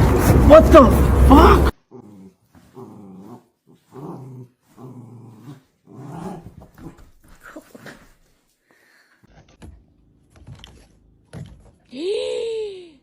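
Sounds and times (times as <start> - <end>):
dog growling: 1.0 - 8.0.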